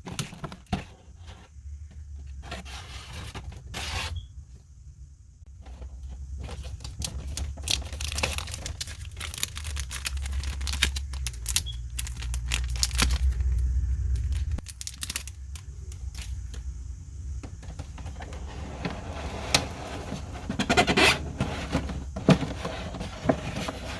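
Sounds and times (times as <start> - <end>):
low rumble: 6.1 - 17.4
packaging crinkling and tearing: 6.5 - 16.4.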